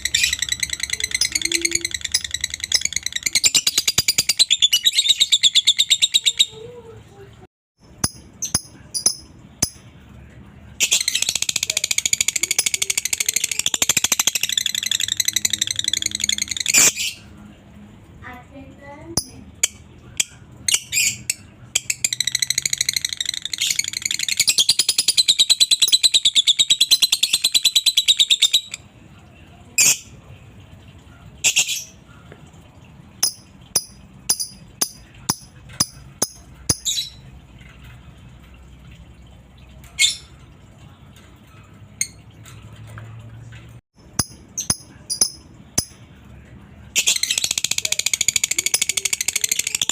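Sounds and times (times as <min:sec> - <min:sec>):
bird high chirps: 0:00.0 - 0:06.6.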